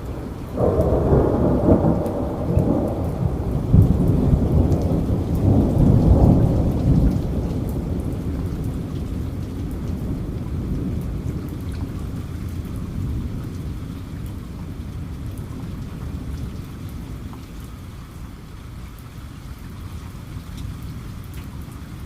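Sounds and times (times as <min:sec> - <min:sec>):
low rumble of thunder: 0:00.0 - 0:22.0
rain falling: 0:00.0 - 0:22.0.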